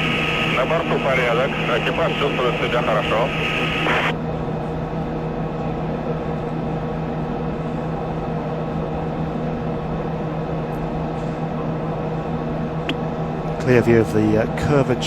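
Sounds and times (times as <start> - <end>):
electrical hum: 0.0 - 4.4.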